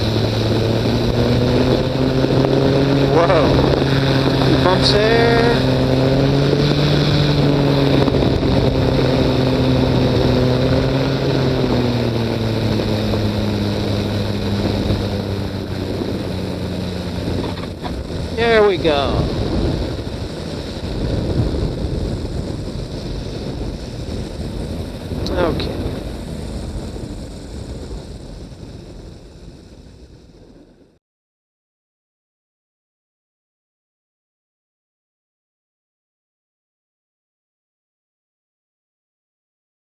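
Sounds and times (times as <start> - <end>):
wind noise: 0.0 - 30.9
engine and propeller running: 0.0 - 31.0.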